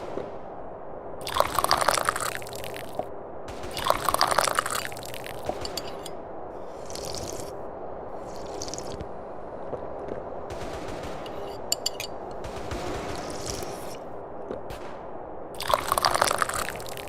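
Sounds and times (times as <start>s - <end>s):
faint background hum: 0.0s - 17.0s
person slurping tea: 6.6s - 7.5s, 8.2s - 9.0s.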